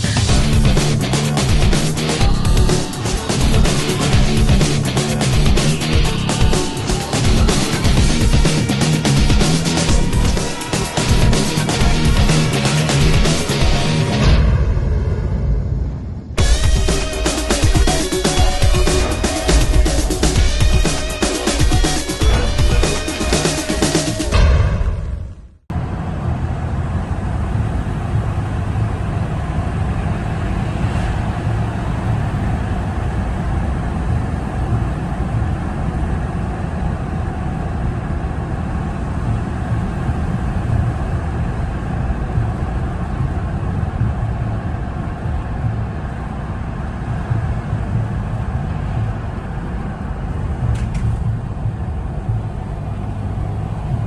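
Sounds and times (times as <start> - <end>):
music track: 0.0 - 14.6, 16.4 - 24.6
vehicle engine and road rumble: 0.0 - 54.0.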